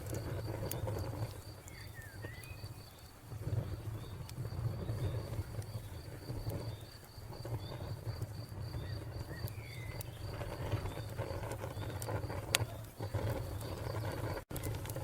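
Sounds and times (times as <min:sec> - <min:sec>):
cricket chirping: 0:00.0 - 0:14.3
fire crackling and popping: 0:00.0 - 0:15.0.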